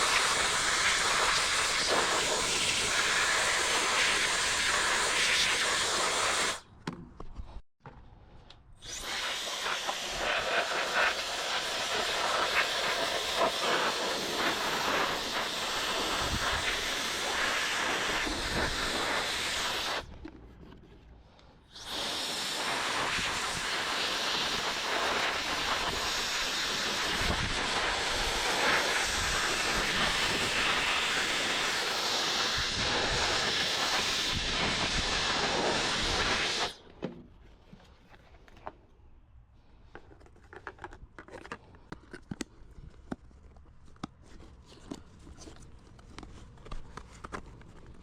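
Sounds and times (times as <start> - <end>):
air duster hissing: 0.0 - 6.6, 8.8 - 20.1, 21.7 - 36.8.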